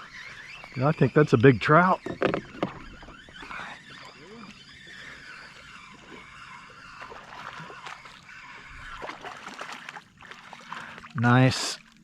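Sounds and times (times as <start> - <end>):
water sloshing and splashing: 1.9 - 12.0
small knocks and clicks: 2.0 - 2.9.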